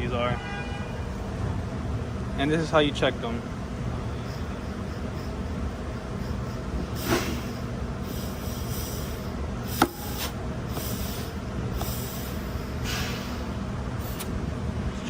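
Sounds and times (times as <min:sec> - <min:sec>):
compressed air hisses: 0:07.0 - 0:13.5.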